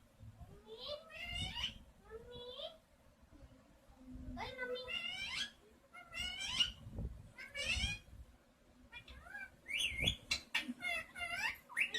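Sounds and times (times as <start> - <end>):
parrot warbling calls: 0.7 - 1.8, 4.8 - 6.8, 7.4 - 8.1, 8.9 - 11.9.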